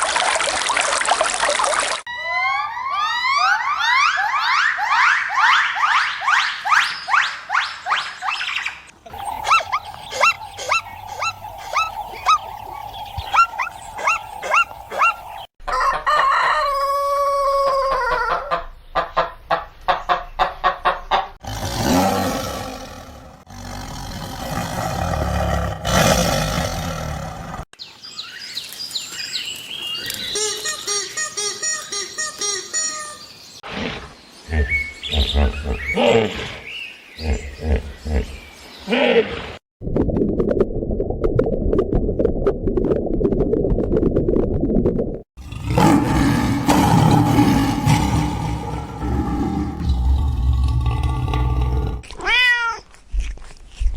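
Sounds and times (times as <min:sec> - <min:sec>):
quick repeated bird calls: 0:05.0 - 0:15.5
bird chirping: 0:05.5 - 0:15.5, 0:34.2 - 0:38.9
arching bird calls: 0:09.1 - 0:15.5.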